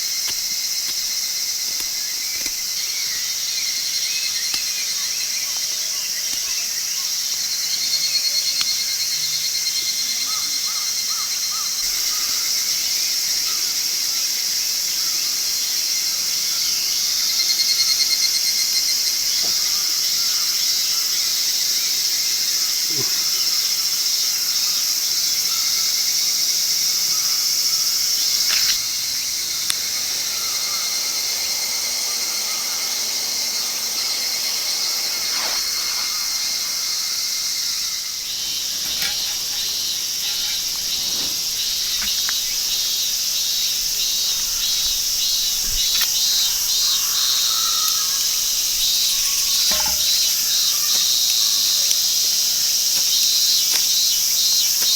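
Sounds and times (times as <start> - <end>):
high-pitched insect chorus: 0.0 - 54.9.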